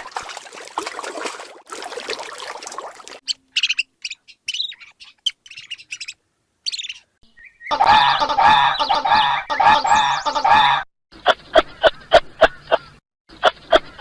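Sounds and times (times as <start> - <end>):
birds chirping: 3.2 - 14.0.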